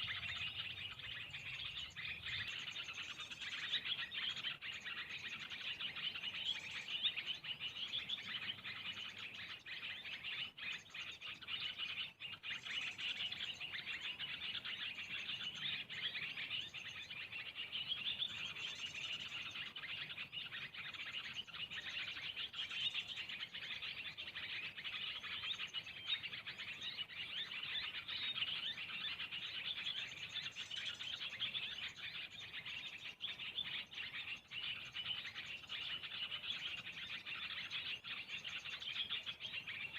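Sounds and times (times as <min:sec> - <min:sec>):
high-pitched bird call: 0:00.0 - 0:10.2
small birds chirping: 0:00.0 - 0:39.9.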